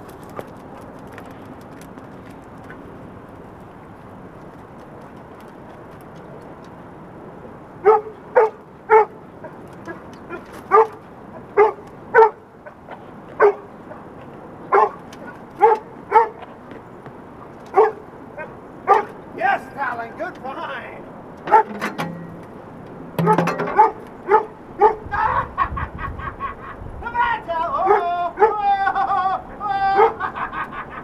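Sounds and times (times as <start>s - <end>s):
dog barking: 7.8s - 11.0s, 11.6s - 14.1s, 14.7s - 16.5s, 17.7s - 19.2s, 21.5s - 21.7s, 23.7s - 25.1s, 27.8s - 28.6s, 30.0s - 30.2s.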